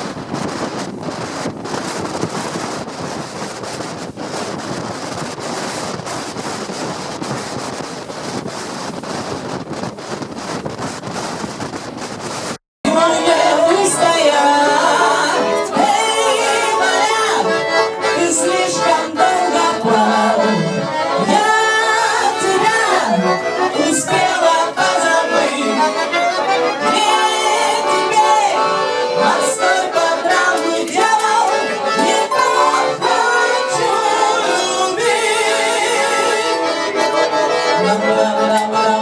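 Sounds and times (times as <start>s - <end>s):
lively accordion music: 12.8s - 39.0s.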